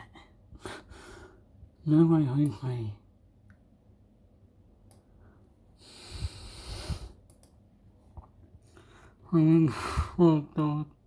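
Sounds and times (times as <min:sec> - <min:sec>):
soft clicks: 0:04.8 - 0:05.1, 0:07.2 - 0:07.6.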